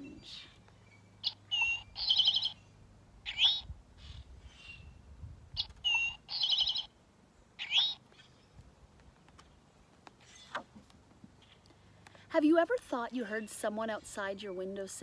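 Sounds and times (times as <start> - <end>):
rising slurred bird call: 0.0 - 4.9, 5.6 - 6.9, 7.6 - 8.4
bird song with fast trill: 0.1 - 8.6.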